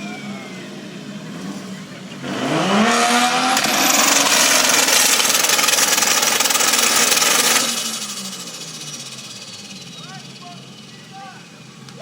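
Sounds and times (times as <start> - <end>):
car engine revving hard: 0.4 - 10.3.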